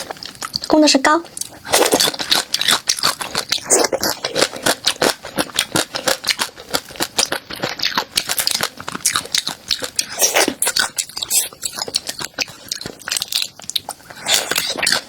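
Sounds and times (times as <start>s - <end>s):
crunching and chewing food: 0.0s - 15.0s.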